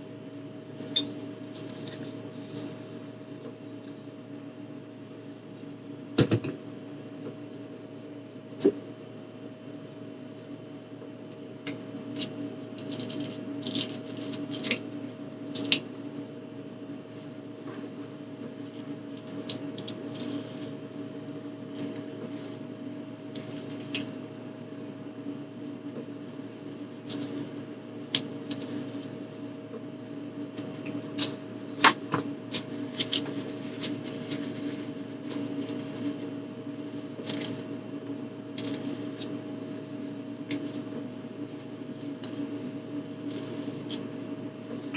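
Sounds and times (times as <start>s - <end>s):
steady hum: 0.0s - 44.9s
food packaging being handled: 12.1s - 15.9s, 30.4s - 39.4s.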